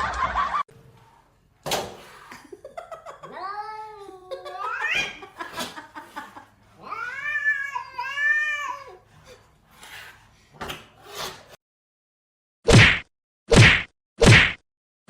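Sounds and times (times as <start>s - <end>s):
cat yowling: 3.2s - 5.3s, 6.8s - 9.0s.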